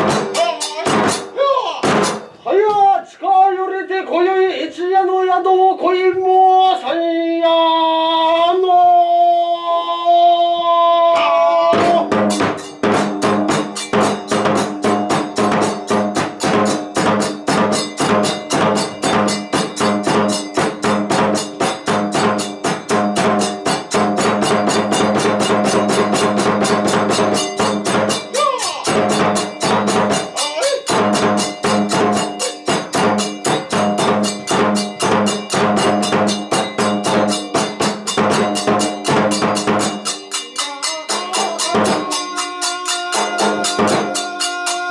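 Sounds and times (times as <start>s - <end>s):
held pitched tones: 0.0s - 2.7s, 8.6s - 44.9s
fast drum and percussion beat: 0.0s - 2.9s, 11.2s - 44.9s.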